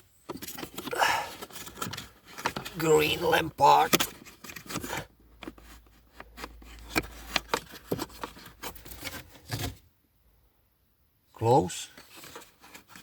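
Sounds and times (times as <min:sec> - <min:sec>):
hands handling car parts: 0:00.0 - 0:09.9, 0:11.8 - 0:13.0.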